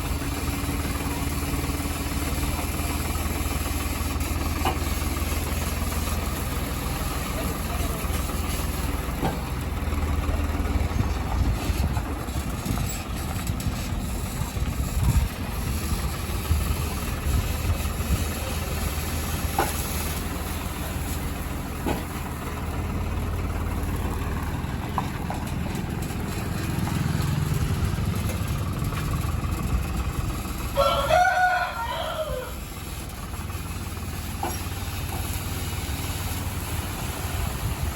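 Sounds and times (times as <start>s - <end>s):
heavy diesel engine running: 0.0s - 37.9s
rooster crowing: 30.7s - 32.6s.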